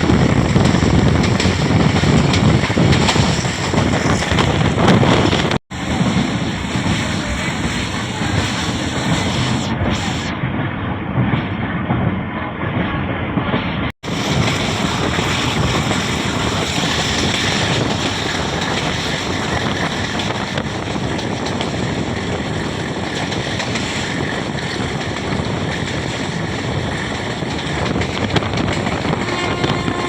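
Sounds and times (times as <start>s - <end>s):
passenger train running: 0.0s - 30.0s
wind rushing over microphone: 0.0s - 30.0s.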